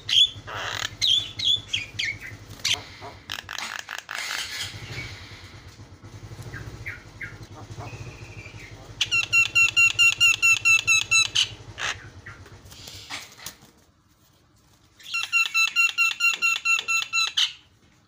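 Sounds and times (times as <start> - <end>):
myna calling: 0.0 - 5.0, 6.4 - 13.3.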